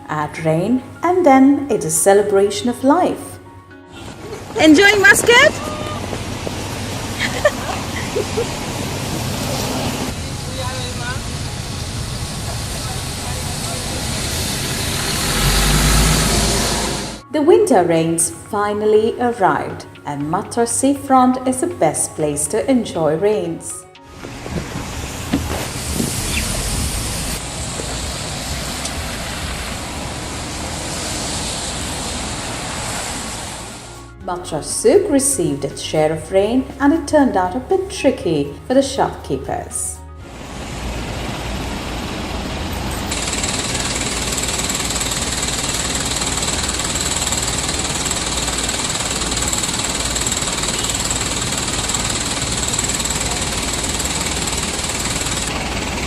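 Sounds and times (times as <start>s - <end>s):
heavy rain: 4.0s - 17.2s, 24.3s - 33.9s
outdoor ambient hiss: 24.0s - 34.2s.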